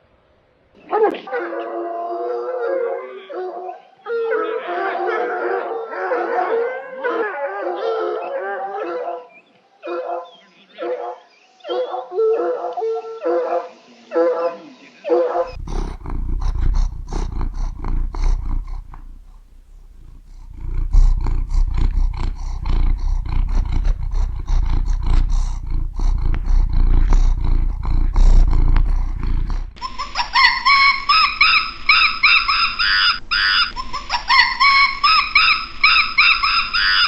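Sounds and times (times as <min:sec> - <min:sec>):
large animal roaring and growling: 0:15.5 - 0:29.8.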